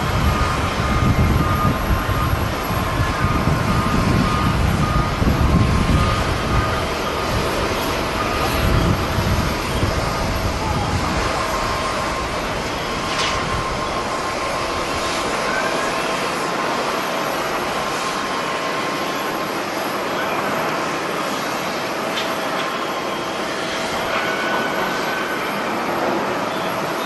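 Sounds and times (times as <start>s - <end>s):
wind buffeting microphone: 0.0s - 16.1s
jet engines running with whine: 0.0s - 27.0s.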